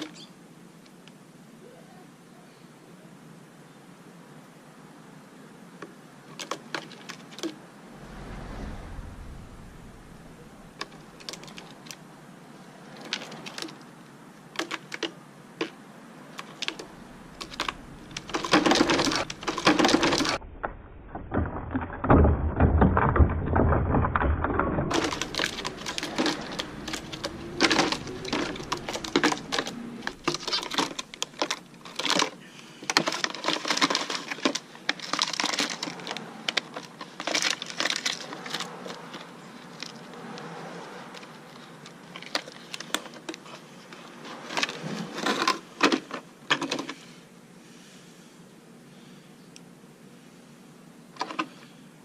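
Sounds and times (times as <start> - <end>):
irregular clicking and knocking: 14.6 - 39.0.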